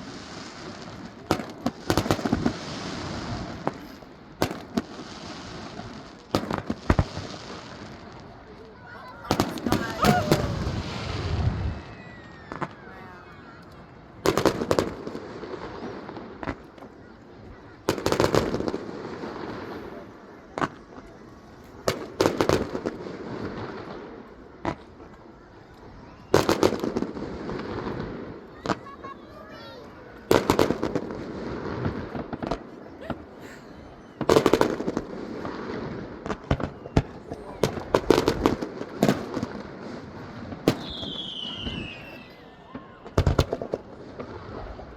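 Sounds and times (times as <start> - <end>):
firework crack: 0.0 - 44.9
sharp firework bangs: 9.2 - 11.9, 34.2 - 42.0, 42.7 - 44.6
fireworks boom: 9.2 - 12.9.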